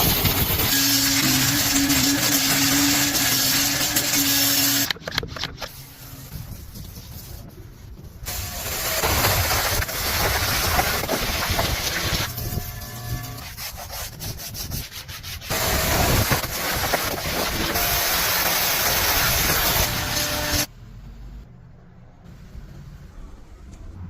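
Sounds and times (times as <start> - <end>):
cleaning machine motor hum: 0.3 - 4.9
loud hiss: 8.2 - 12.9, 15.5 - 20.7.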